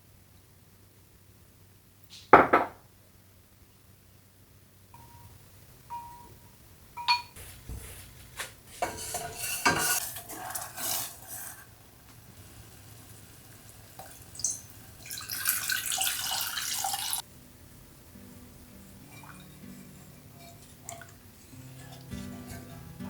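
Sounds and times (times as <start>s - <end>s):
dishes and utensils clinking: 5.9s - 6.4s, 7.0s - 7.9s, 8.8s - 11.7s, 19.0s - 23.0s
running water: 12.9s - 17.2s.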